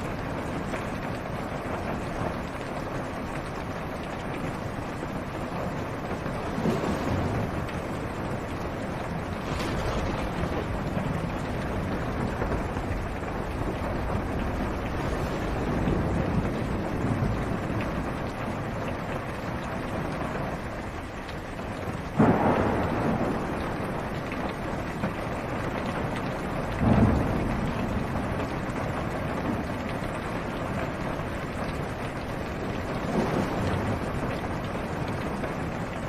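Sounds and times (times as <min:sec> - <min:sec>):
rain on a car roof: 0:00.0 - 0:36.0
soft thunder rumble: 0:00.0 - 0:36.0
thunder clap: 0:06.0 - 0:18.9, 0:22.1 - 0:35.9.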